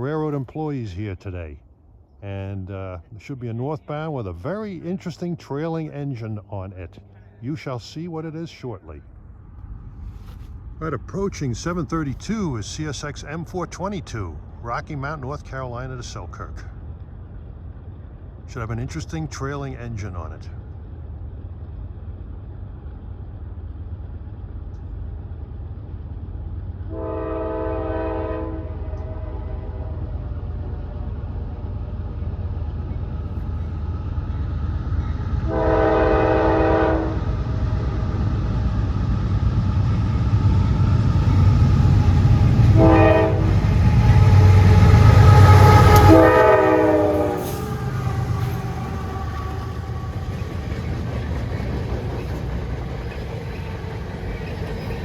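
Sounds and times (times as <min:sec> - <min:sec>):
locomotive engine rumble: 0:00.0 - 0:55.0
freight train running: 0:02.2 - 0:55.0
train horn: 0:26.9 - 0:30.4, 0:35.4 - 0:37.3, 0:41.2 - 0:50.7.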